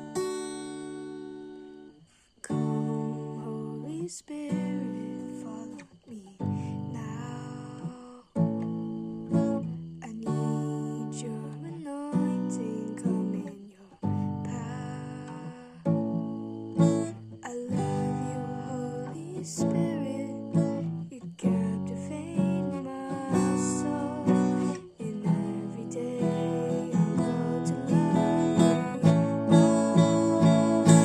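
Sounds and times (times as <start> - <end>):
acoustic guitar strumming chords: 12.2 - 31.0.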